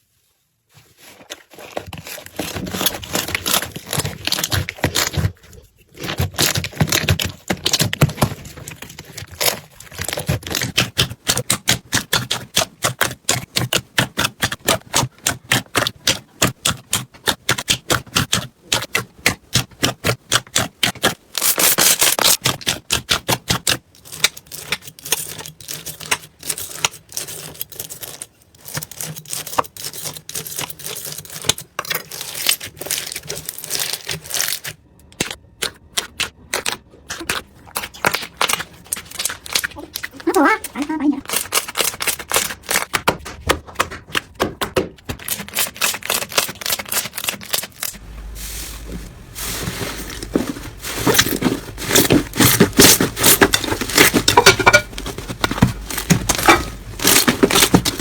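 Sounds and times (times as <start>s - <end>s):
crunchy slime squish: 0.7s - 44.4s, 45.0s - 58.0s
slime popping and crackling: 6.0s - 43.6s, 49.3s - 58.0s.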